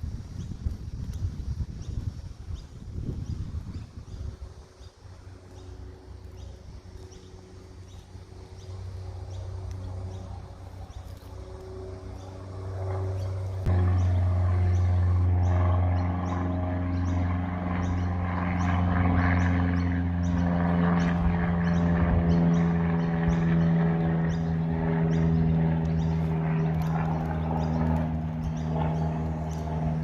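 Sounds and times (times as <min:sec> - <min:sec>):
low motor hum: 0:00.0 - 0:30.0.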